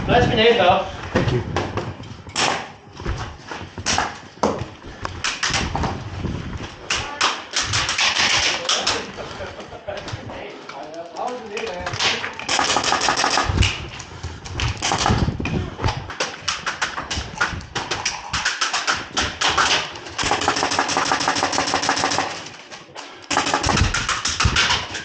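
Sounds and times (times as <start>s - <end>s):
airsoft guns firing full auto: 12.0s - 13.8s, 18.5s - 22.6s, 23.3s - 25.0s.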